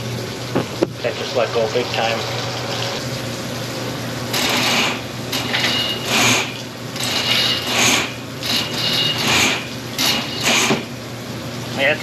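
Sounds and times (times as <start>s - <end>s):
drain-cleaning machine bursts: 4.2s - 11.1s.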